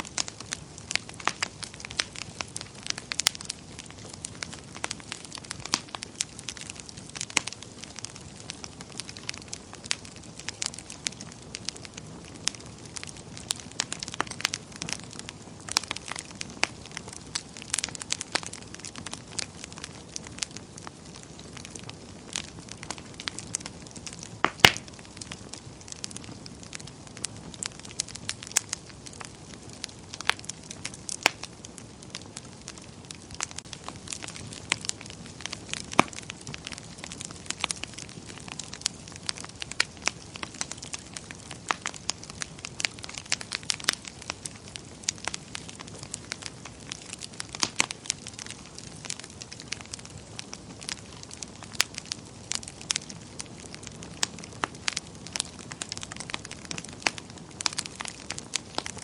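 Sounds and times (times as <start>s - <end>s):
fire flames hissing: 0.0s - 59.0s
logs crackling and popping: 0.0s - 59.0s.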